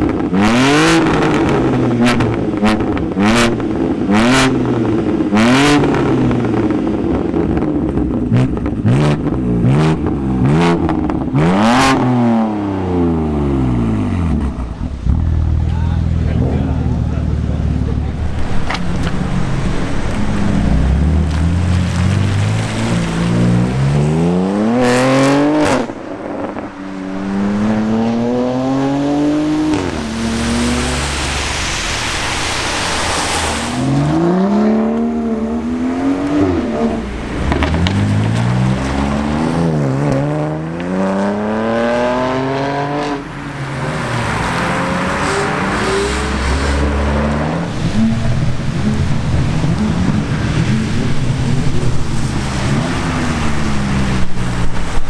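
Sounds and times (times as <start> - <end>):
car engine revving through gears: 0.0 - 55.0
rushing noise: 16.8 - 34.5.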